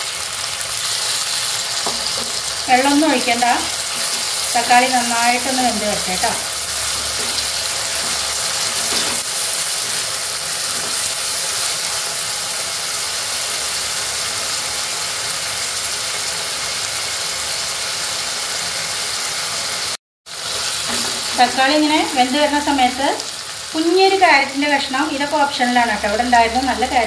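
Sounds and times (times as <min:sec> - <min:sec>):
vegetables sizzling in oil: 0:00.0 - 0:27.0.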